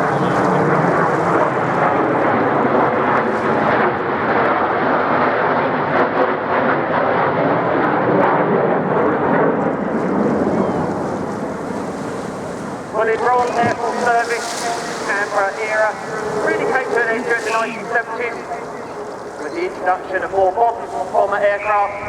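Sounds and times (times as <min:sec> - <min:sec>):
jet aircraft engines in flight: 0:00.0 - 0:22.0.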